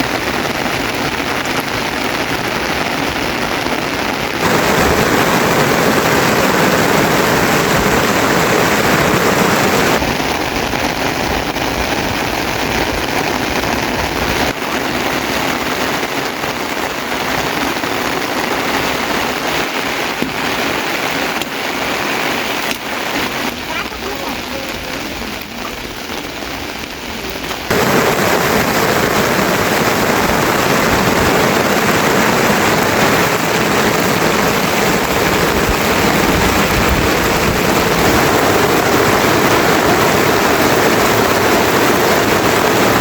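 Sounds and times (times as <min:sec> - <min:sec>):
rain falling: 0:00.0 - 0:43.0.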